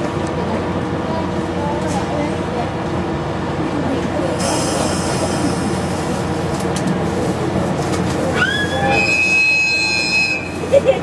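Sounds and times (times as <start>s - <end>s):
train rolling rumble: 0.0s - 11.0s
high-pitched wheel squeal: 8.4s - 10.6s.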